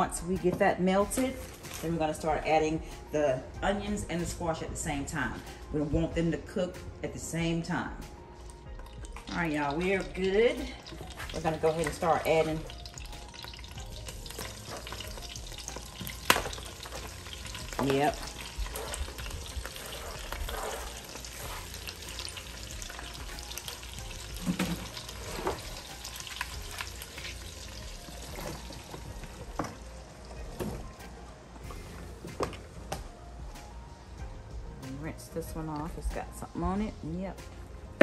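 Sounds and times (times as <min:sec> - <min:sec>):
vegetables sizzling in butter: 0:09.1 - 0:30.0.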